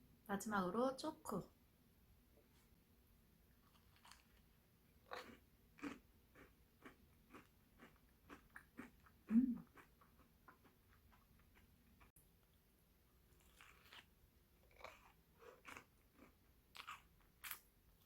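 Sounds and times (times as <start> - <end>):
chewing crisp waffle: 3.6 - 12.1, 13.3 - 18.0.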